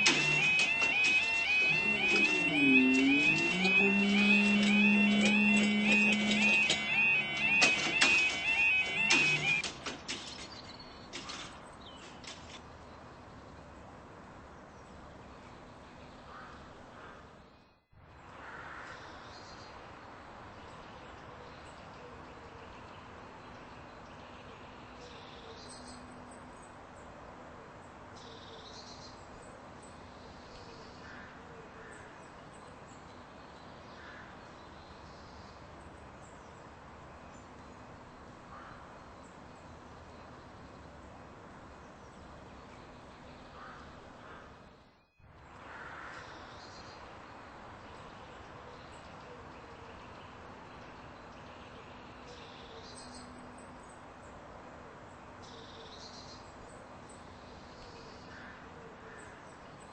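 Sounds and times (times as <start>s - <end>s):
crows cawing: 0.0s - 9.6s, 18.4s - 19.0s, 34.0s - 34.4s, 38.5s - 38.9s, 43.6s - 44.6s, 45.7s - 46.3s
birds calling: 0.0s - 12.6s
outdoor background noise: 0.0s - 59.9s.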